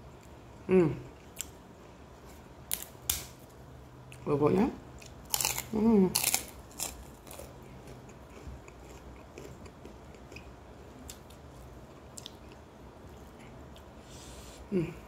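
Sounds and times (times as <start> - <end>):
low steady hum: 0.0 - 15.0
person chewing food: 5.0 - 14.0.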